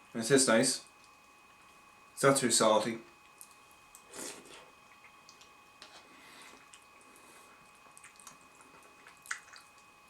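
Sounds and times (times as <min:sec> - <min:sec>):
faint wet eating sounds: 0:03.1 - 0:10.0.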